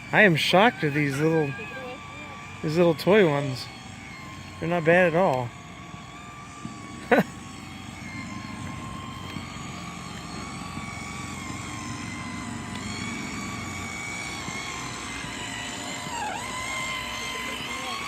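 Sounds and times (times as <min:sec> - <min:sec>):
toy boat electric motors whining: 0:00.0 - 0:18.0.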